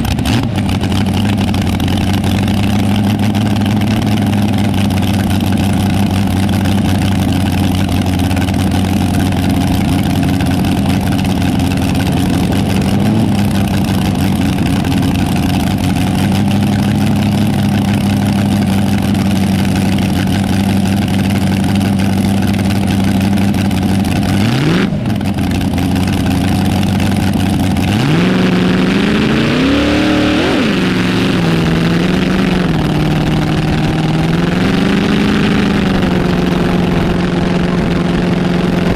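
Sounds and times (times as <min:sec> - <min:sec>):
vehicle engine idling and revving: 0:00.0 - 0:38.9.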